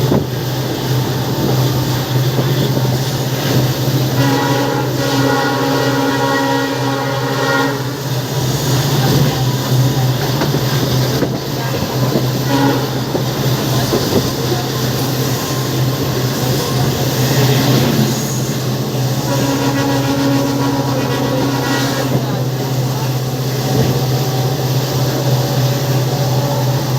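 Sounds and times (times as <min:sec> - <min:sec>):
locomotive engines droning: 0:00.0 - 0:26.9
train rolling noise: 0:00.0 - 0:26.9
train horn: 0:04.2 - 0:08.2, 0:12.4 - 0:13.3, 0:19.2 - 0:22.6.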